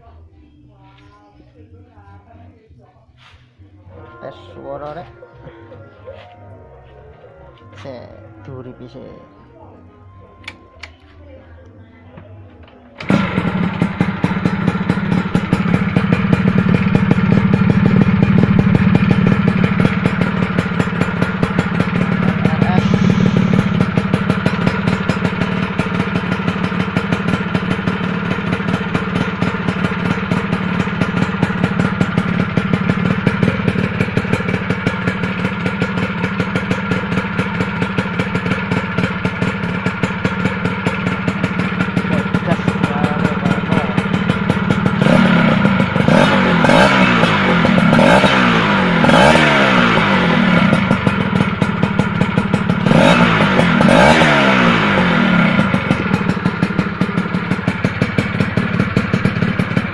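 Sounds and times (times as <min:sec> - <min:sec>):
two-stroke motorcycle engine running: 0:13.0 - 0:59.9.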